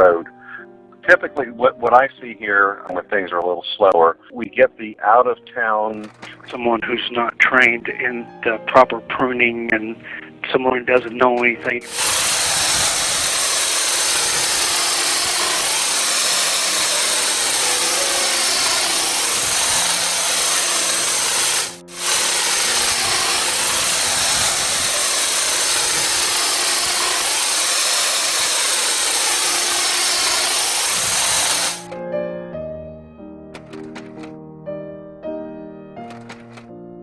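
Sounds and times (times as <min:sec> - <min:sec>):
power saw cutting wood: 0:06.0 - 0:06.6, 0:11.0 - 0:32.0, 0:33.6 - 0:34.3, 0:36.1 - 0:36.6.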